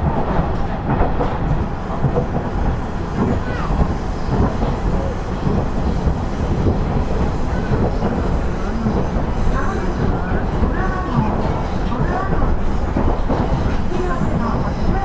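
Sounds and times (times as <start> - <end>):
faint track knocks: 0.0 - 15.0
railcar engine and wheels rumbling: 0.0 - 15.0.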